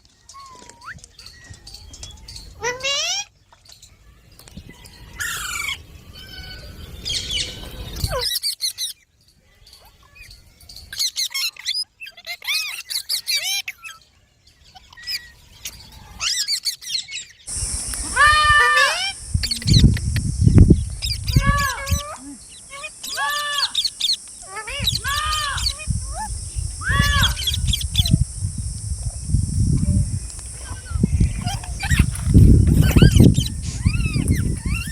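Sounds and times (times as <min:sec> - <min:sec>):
parrots squawking: 0:17.5 - 0:28.2, 0:30.5 - 0:34.9
steady hiss: 0:17.5 - 0:34.9.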